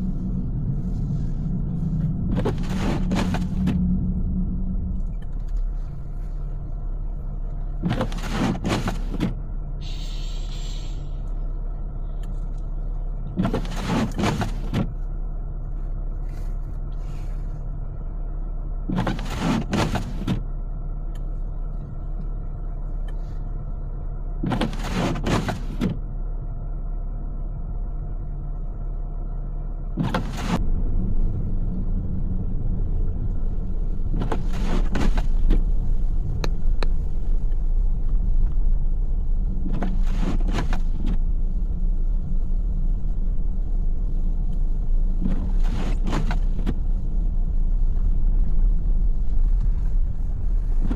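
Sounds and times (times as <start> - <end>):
windshield wipers sweeping: 0.0 - 6.6, 7.6 - 11.0, 13.3 - 15.0, 18.9 - 20.5, 24.4 - 26.0, 30.0 - 30.6, 32.4 - 50.9
engine and road rumble: 0.0 - 50.9.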